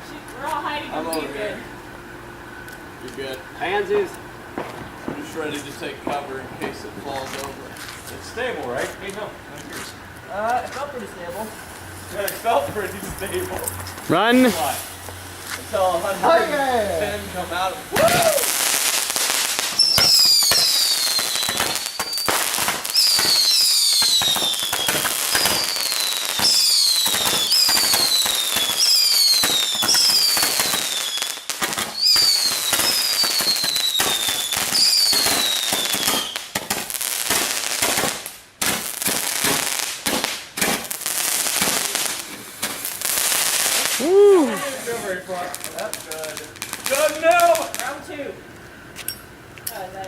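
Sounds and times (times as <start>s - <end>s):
firework bangs and crackles: 2.8s - 48.2s
falling firework whistles: 17.8s - 45.0s.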